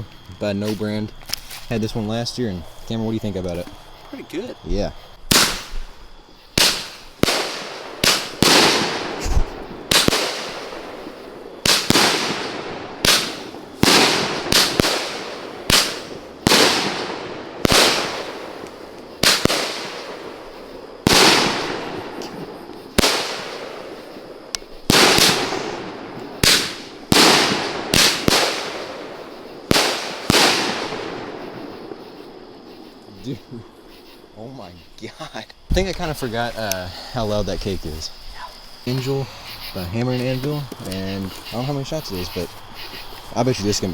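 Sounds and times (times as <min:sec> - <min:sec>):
fireworks bangs with echoing rumble: 0:05.3 - 0:05.9, 0:06.6 - 0:32.9.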